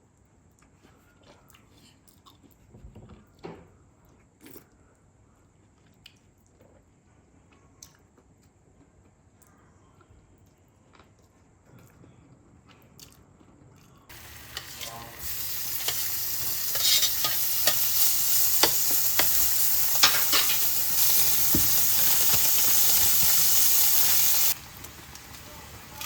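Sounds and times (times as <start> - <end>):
food sizzling in a hot pan: 14.1 - 26.0.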